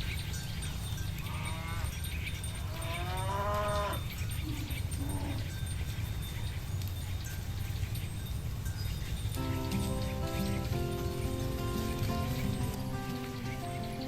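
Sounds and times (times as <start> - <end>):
cattle mooing: 1.2 - 2.0, 2.7 - 5.5.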